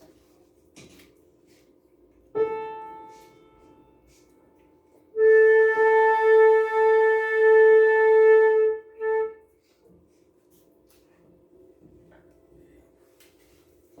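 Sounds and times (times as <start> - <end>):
flute playing a long note: 2.4 - 4.0, 5.2 - 9.5.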